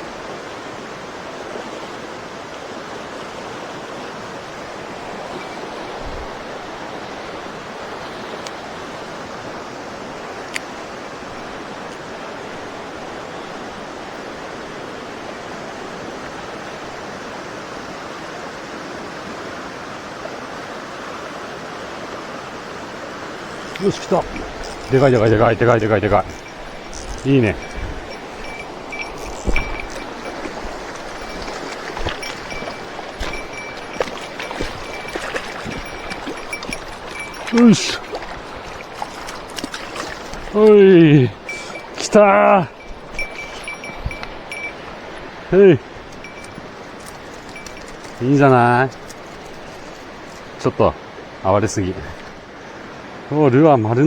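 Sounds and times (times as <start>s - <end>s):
mountain stream rushing: 0.0s - 54.0s
light clicks and small splashes: 10.2s - 14.2s, 23.5s - 50.7s.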